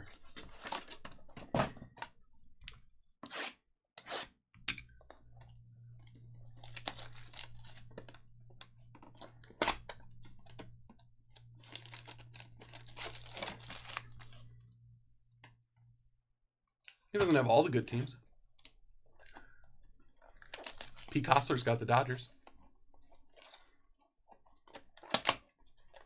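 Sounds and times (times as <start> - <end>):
wrappers tearing and crinkling: 6.4 - 10.7, 11.3 - 14.5, 20.4 - 22.2.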